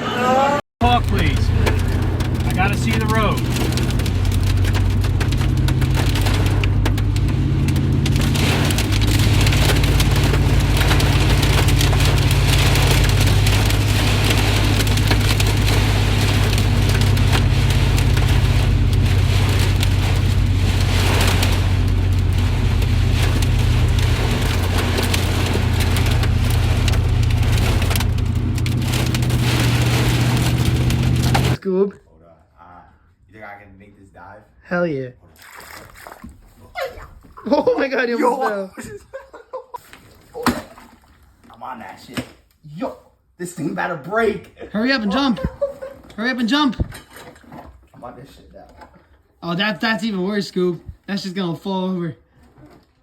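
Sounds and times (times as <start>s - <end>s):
engine and road hum: 0.0s - 31.6s
heavy rain on a car: 0.8s - 31.6s.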